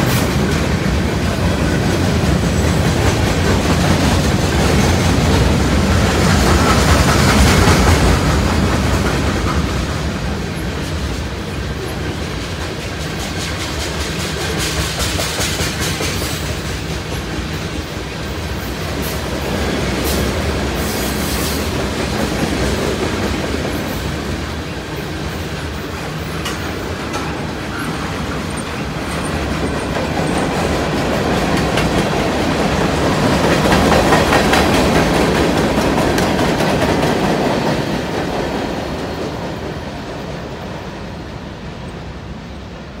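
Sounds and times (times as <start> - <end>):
freight train rumbling past: 0.0 - 43.0
wheels clicking over rail joints: 21.6 - 39.7.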